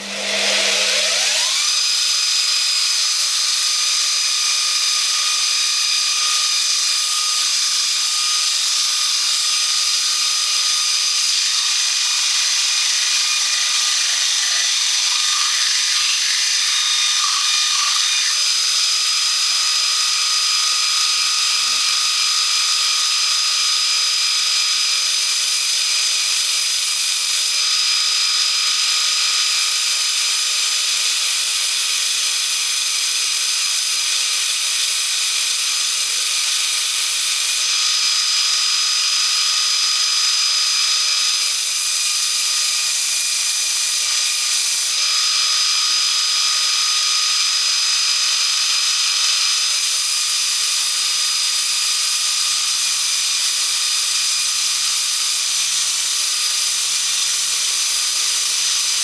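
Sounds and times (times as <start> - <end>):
belt sander grinding steel: 0.0 - 3.3, 9.8 - 23.1.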